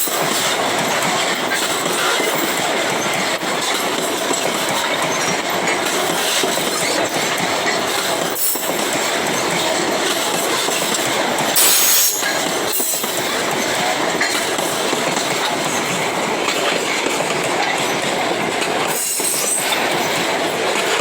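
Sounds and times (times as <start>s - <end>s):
shrill wheel squeal: 0.0s - 14.4s, 18.9s - 20.4s
freight train rumbling on rails: 0.0s - 21.0s.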